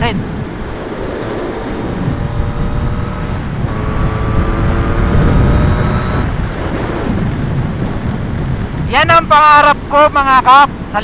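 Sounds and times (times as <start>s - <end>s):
motorcycle engine revving: 0.0s - 8.8s
wind noise on microphone: 0.0s - 11.0s.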